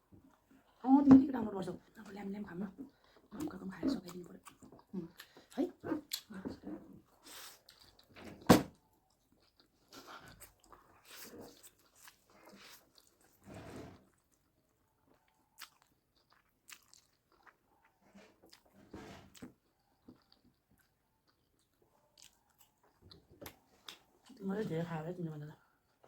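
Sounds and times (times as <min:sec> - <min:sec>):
person chewing food: 0:04.1 - 0:06.3, 0:07.0 - 0:13.4, 0:14.0 - 0:24.3.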